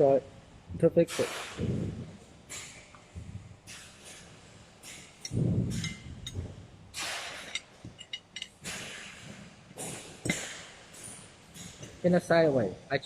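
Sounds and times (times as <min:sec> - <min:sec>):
parts scraping and rustling: 0:03.7 - 0:12.1.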